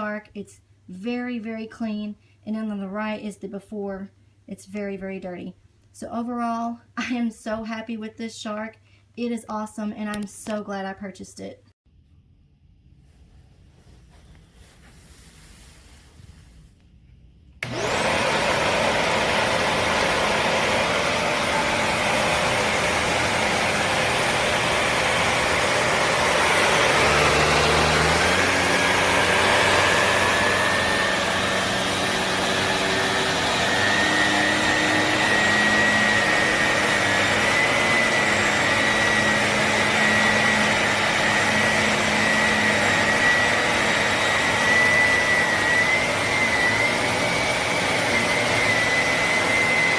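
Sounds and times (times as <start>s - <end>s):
upright vacuum cleaner running: 17.6s - 49.9s.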